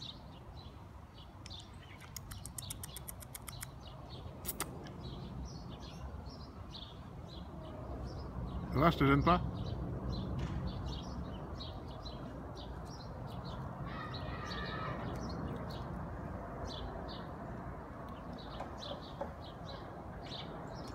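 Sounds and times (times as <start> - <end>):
small birds chirping: 0.0 - 20.9
fuller bird call: 13.5 - 15.8.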